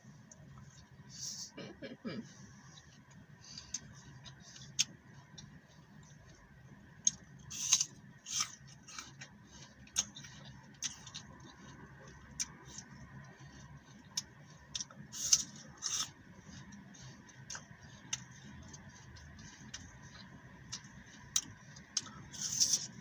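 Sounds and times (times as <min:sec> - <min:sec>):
apple crunching while chewed: 0:07.0 - 0:23.0.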